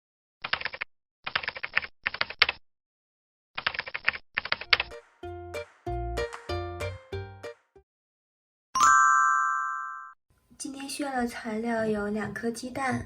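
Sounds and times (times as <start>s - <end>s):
keyboard typing: 0.4s - 2.6s, 3.6s - 5.1s
chime-like tune: 8.8s - 10.2s.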